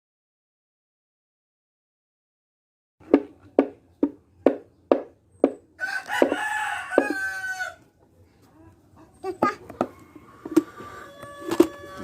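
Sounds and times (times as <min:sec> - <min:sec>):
rooster crowing: 0:05.8 - 0:07.8, 0:09.9 - 0:12.0.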